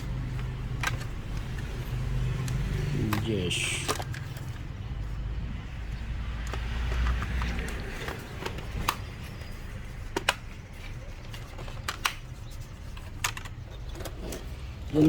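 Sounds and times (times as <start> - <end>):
small parts clicking and tapping: 0.0 - 15.0.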